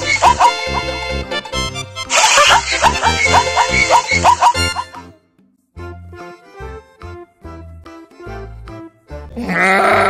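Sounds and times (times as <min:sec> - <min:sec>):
zebra barking yelps: 0:00.0 - 0:00.9, 0:02.1 - 0:05.1
light background music: 0:00.0 - 0:10.0.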